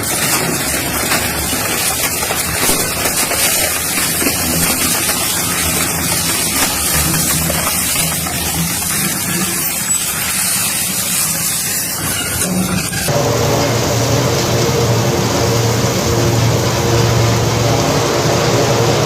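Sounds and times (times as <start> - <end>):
crushing machine running: 0.0 - 19.0
low hum: 13.1 - 19.0.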